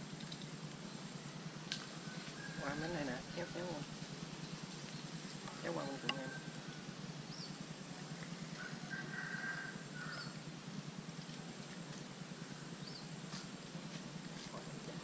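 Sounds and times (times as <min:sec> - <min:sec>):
steady background noise: 0:00.0 - 0:15.0
birds chirping: 0:00.4 - 0:09.4, 0:12.2 - 0:13.4.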